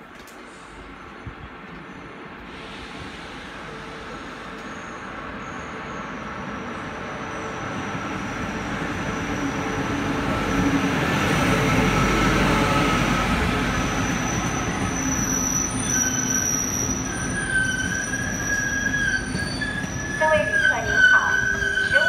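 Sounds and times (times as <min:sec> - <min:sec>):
train wheels rumbling on rail: 0:00.0 - 0:22.0
high wheel squeals: 0:13.8 - 0:22.0.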